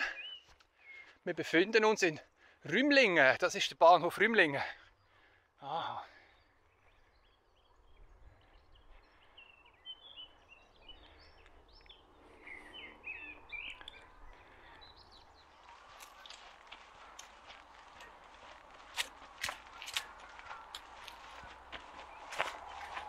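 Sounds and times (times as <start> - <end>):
small birds chirping: 0.0 - 2.7, 3.5 - 23.0
footsteps: 15.4 - 23.0.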